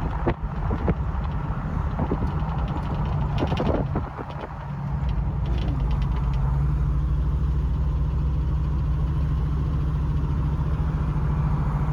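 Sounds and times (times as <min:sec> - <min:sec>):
vehicle engine droning: 0:00.0 - 0:11.9.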